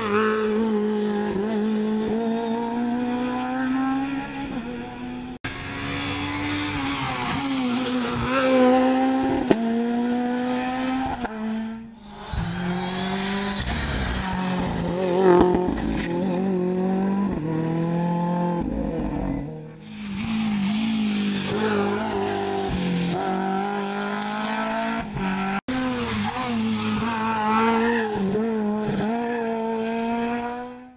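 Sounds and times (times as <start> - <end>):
rally car engines revving: 0.0 - 30.9
tyre squeal: 12.0 - 14.8.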